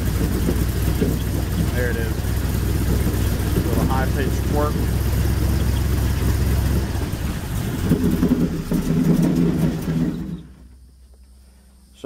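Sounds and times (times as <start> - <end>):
airboat engine and propeller: 0.0 - 9.1.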